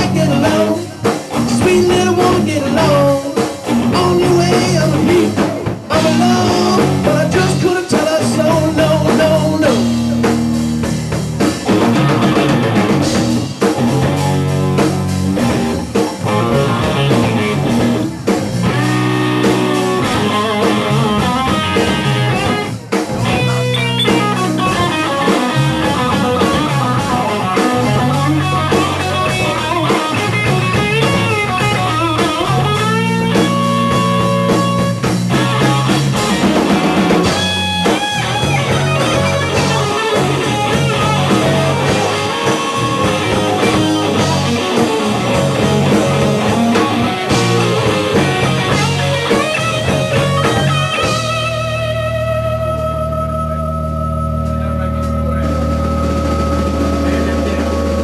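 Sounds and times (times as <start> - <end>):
bass and drums: 0.0 - 58.0
electric guitar lead lines: 0.0 - 58.0
wavering keyboard tones: 23.6 - 25.5.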